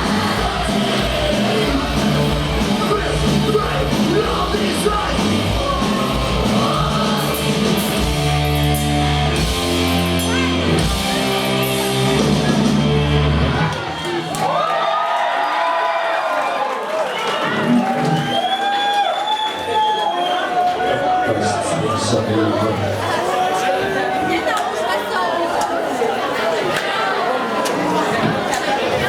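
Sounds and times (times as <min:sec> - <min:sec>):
live punk band playing: 0:00.0 - 0:13.7
yelled vocals: 0:00.0 - 0:14.1.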